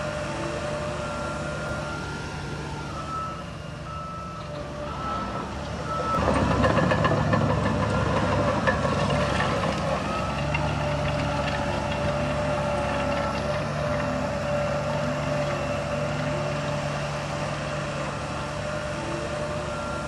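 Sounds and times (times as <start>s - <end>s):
diesel machinery engine: 0.0s - 20.0s
reversing beep: 0.1s - 7.0s, 18.6s - 20.0s
loud machine clattering: 6.2s - 13.6s.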